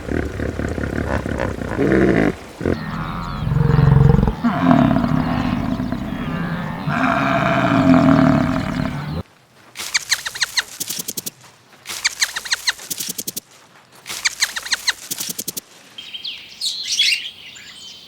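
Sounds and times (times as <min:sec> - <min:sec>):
large animal growling: 0:00.0 - 0:09.2.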